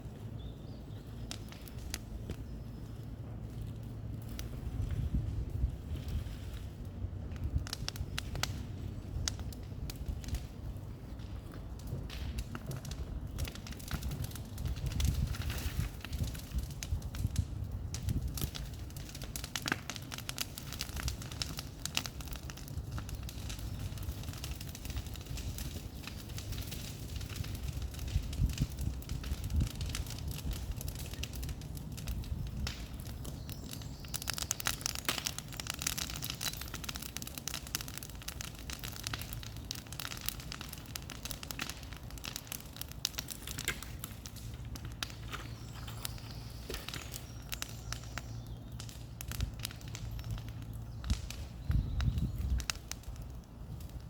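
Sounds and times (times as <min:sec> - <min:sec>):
bonfire crackling and popping: 0:00.0 - 0:54.0.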